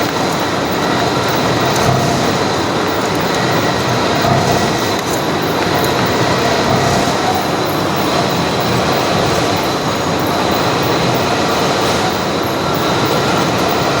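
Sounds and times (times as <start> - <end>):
boring machine running: 0.0 - 14.0.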